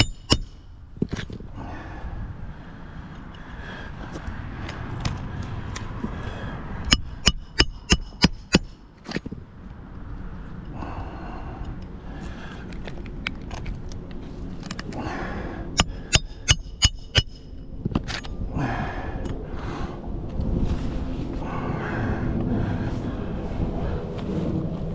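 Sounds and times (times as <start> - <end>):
sharp ringing knocks: 0.0 - 0.7, 6.9 - 8.8, 15.8 - 17.6.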